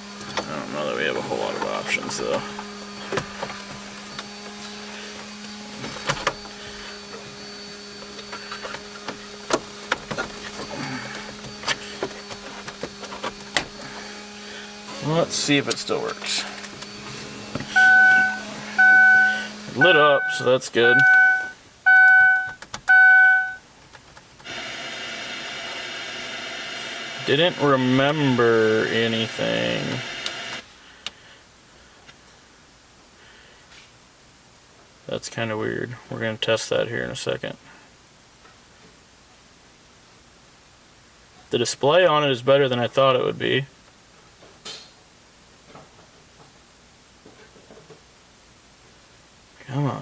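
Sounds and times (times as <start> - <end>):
static hiss from car speakers: 0.0 - 50.0
low hum: 16.4 - 23.6
long electronic beeps: 17.7 - 23.6.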